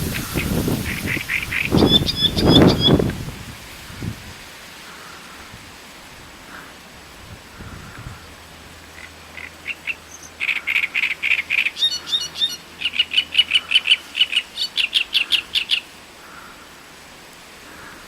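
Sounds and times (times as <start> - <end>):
warbler singing: 0.0 - 3.2, 9.6 - 15.9.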